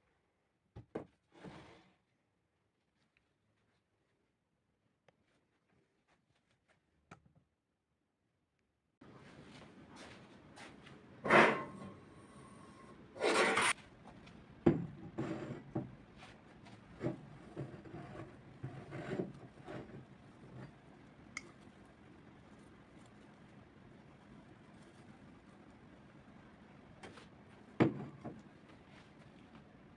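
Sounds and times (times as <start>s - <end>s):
object scraping slide: 11.2s - 13.8s.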